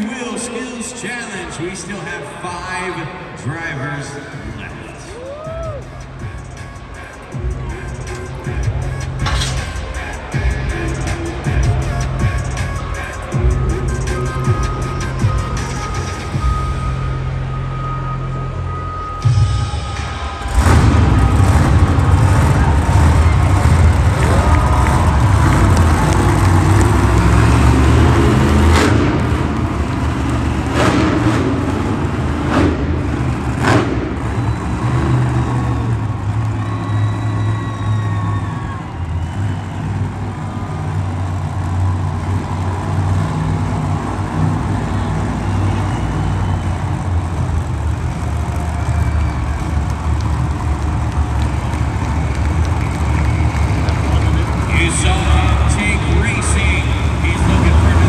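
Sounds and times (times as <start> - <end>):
truck engine low rumble: 3.2 - 58.0
sharp bangs: 6.2 - 16.9, 19.1 - 36.0.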